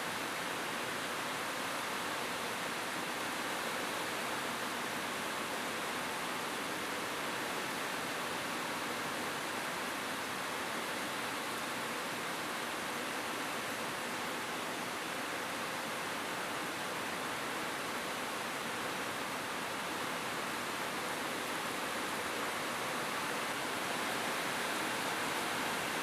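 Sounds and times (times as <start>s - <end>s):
rain falling on a roof: 0.0s - 26.0s.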